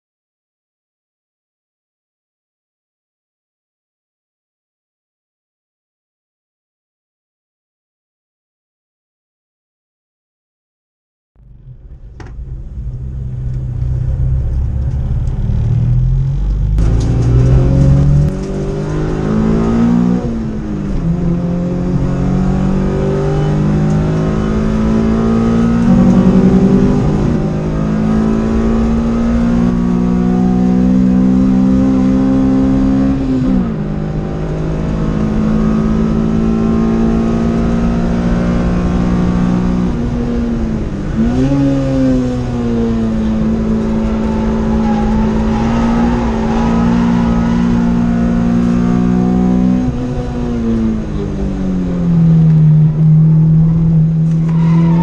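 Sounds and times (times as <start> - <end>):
car engine accelerating: 11.4 - 55.0.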